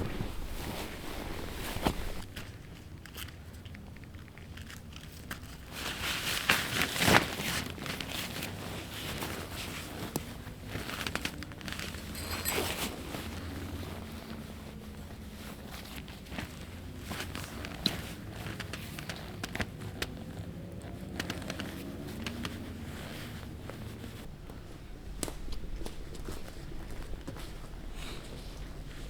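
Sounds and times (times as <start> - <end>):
rustling and crinkling: 0.0 - 29.0
steady low hum: 24.2 - 29.0.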